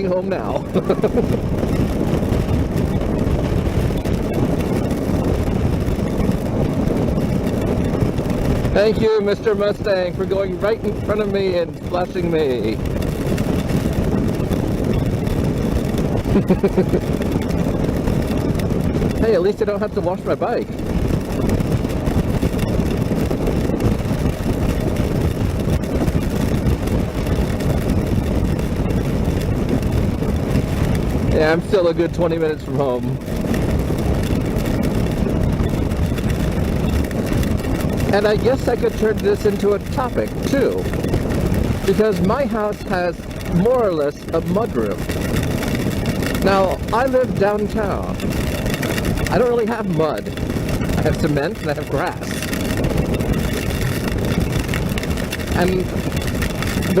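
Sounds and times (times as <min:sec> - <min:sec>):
motorcycle engine: 0:00.0 - 0:57.0
tyre noise on wet road: 0:00.0 - 0:57.0
wind rushing on microphone: 0:00.0 - 0:57.0
tyres on wet road: 0:35.8 - 0:57.0.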